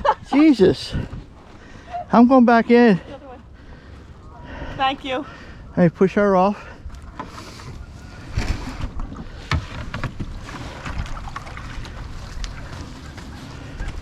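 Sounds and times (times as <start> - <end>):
kayak hull and paddle knocks: 8.3 - 13.3.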